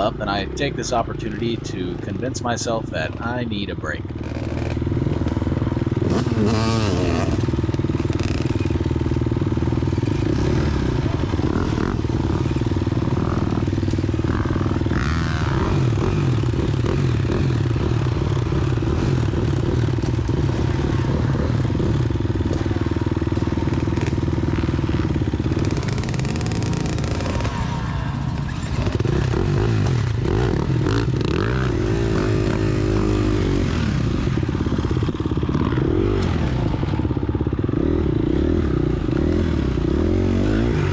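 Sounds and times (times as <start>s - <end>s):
dirt bike engines revving: 0.0s - 40.9s.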